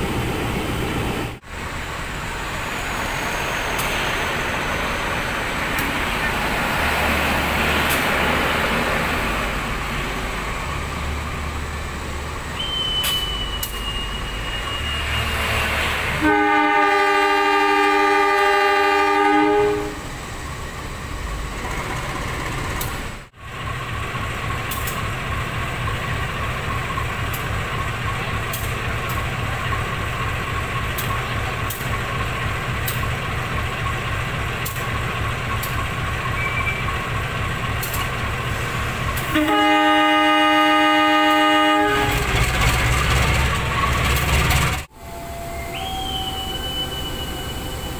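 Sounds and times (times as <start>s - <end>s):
train running: 0.0s - 47.9s
locomotive horn blast: 12.6s - 20.1s, 39.2s - 42.4s.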